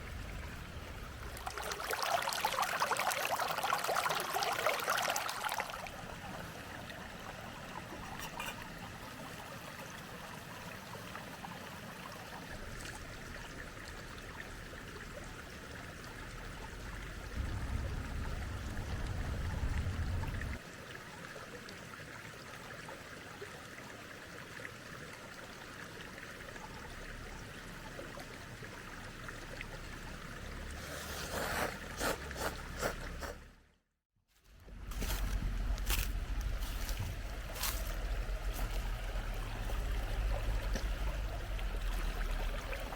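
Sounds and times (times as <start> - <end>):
stream flowing over rocks: 0.0 - 33.6, 34.7 - 42.9
low rumble: 16.6 - 20.6, 34.6 - 42.9.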